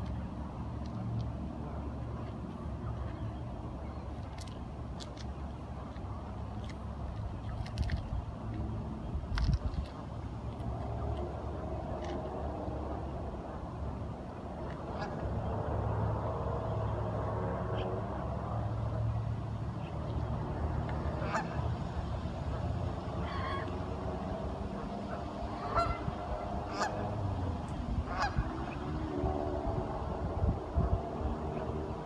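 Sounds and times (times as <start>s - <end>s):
ducks calling: 21.2s - 21.7s, 23.2s - 23.8s, 24.7s - 27.2s, 28.1s - 29.0s.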